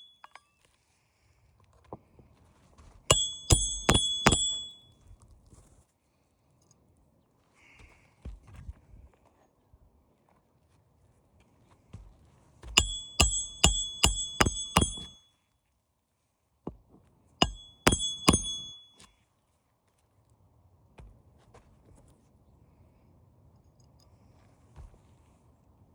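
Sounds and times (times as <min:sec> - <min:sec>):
hammer striking nails: 0:03.1 - 0:04.8, 0:12.8 - 0:15.2, 0:17.4 - 0:19.1.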